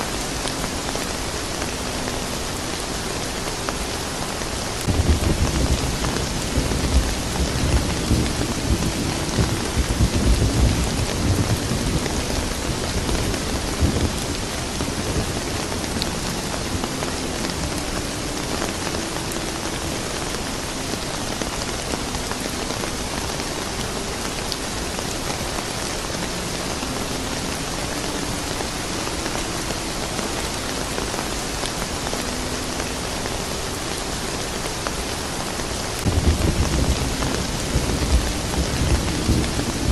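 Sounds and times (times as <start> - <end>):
steady rain on a surface: 0.0 - 39.9
low rolling thunder: 4.8 - 16.8, 36.1 - 39.9.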